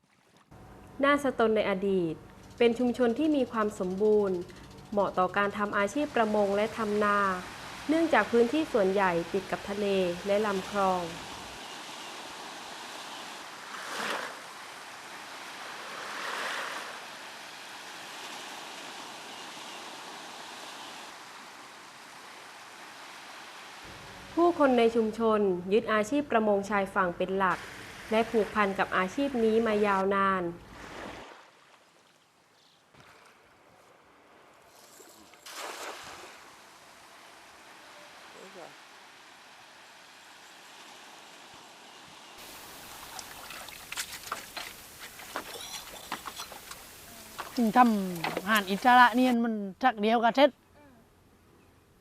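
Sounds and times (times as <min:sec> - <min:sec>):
water lapping and trickling: 0:00.0 - 0:00.6, 0:03.4 - 0:24.0, 0:30.6 - 0:49.4
sea surf washing ashore: 0:05.4 - 0:25.1, 0:27.6 - 0:32.1, 0:33.0 - 0:49.4
waves breaking: 0:05.8 - 0:24.0, 0:27.6 - 0:30.0, 0:30.6 - 0:49.4
water splash: 0:35.2 - 0:36.7, 0:42.4 - 0:49.4.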